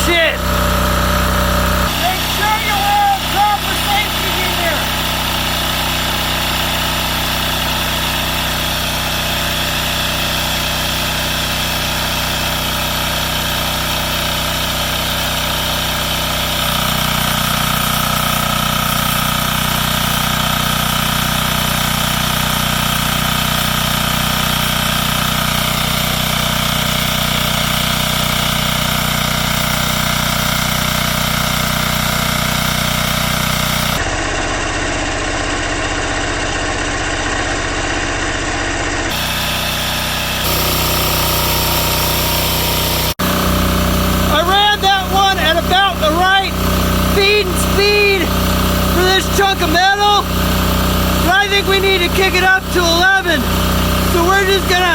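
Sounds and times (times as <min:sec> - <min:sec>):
diesel generator engine running: 0:00.0 - 0:54.9
steady whine: 0:40.4 - 0:43.5.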